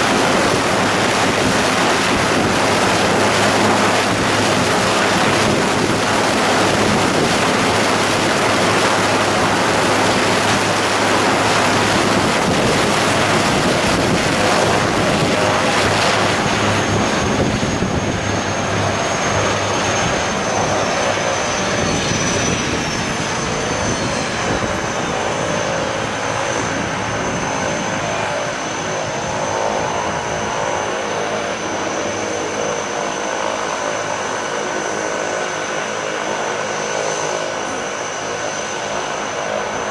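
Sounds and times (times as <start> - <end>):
engine drone: 0.0 - 35.5
thin high whine: 11.7 - 33.0.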